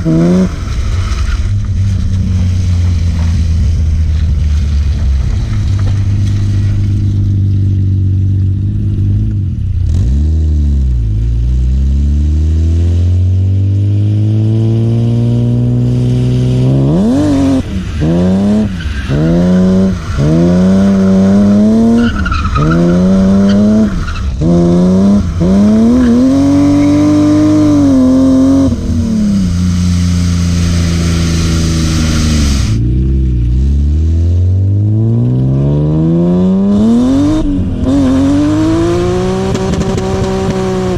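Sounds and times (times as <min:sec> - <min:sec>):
car engine revving hard: 0:00.0 - 0:00.8, 0:11.9 - 0:32.9, 0:33.9 - 0:40.9
tyre squeal: 0:17.5 - 0:24.5, 0:25.8 - 0:27.9.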